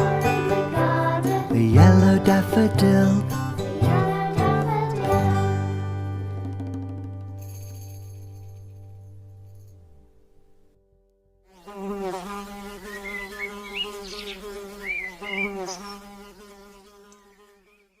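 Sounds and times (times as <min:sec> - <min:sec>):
music: 0:00.0 - 0:10.9
insect buzzing: 0:11.5 - 0:18.0.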